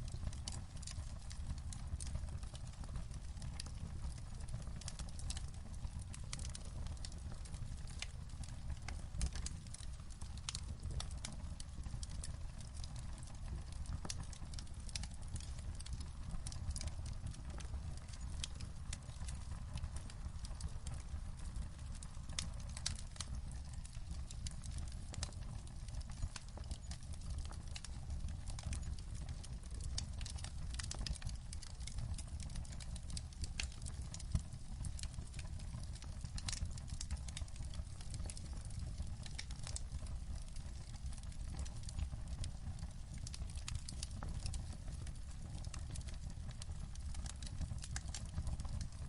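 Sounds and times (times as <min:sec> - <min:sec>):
wood fire crackling: 0:00.0 - 0:49.0.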